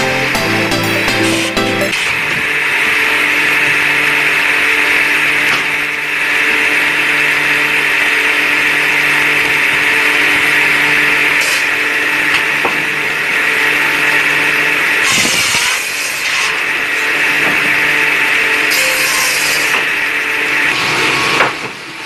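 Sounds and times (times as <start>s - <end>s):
power tool motor whirring: 15.0s - 21.5s.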